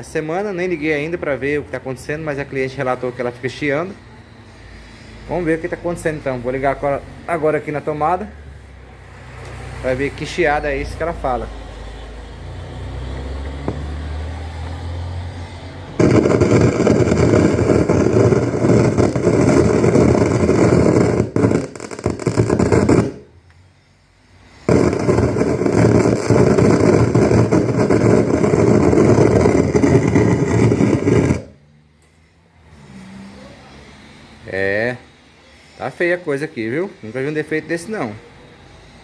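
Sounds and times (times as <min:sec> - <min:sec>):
loud crackling popping from speakers: 0:16.0 - 0:23.3, 0:24.7 - 0:31.6.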